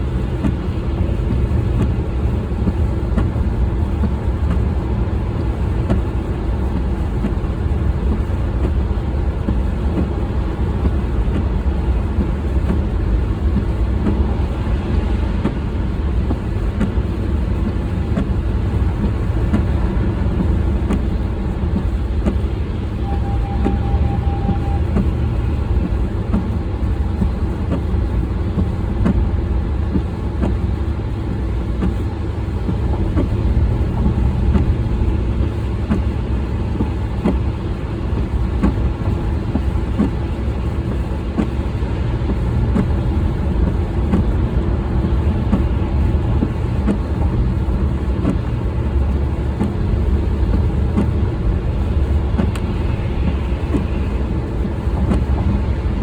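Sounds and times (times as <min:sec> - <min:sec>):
car engine and road rumble: 0:00.0 - 0:56.0
short steady beep: 0:23.0 - 0:25.7.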